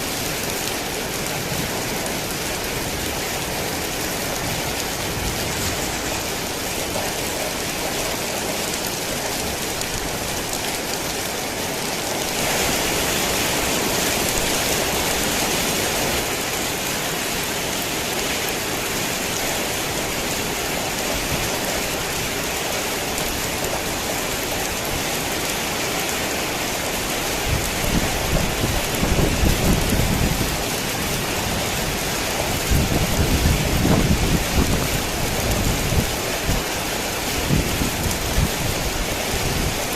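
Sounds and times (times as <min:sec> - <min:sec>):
heavy rain falling: 0:00.0 - 0:39.9
low thunder rumbling: 0:27.3 - 0:36.7.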